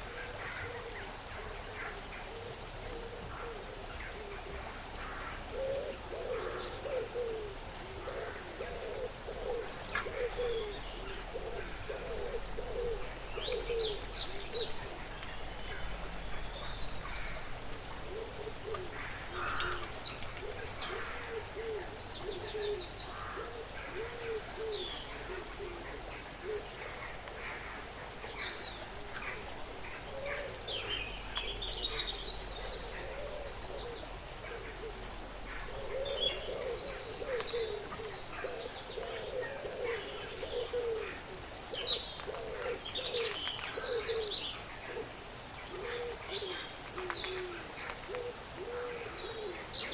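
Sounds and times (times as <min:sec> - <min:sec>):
faint clicks: 0:13.4 - 0:16.4, 0:18.6 - 0:21.1, 0:31.3 - 0:32.8, 0:37.2 - 0:40.8, 0:41.6 - 0:44.4, 0:46.8 - 0:48.8.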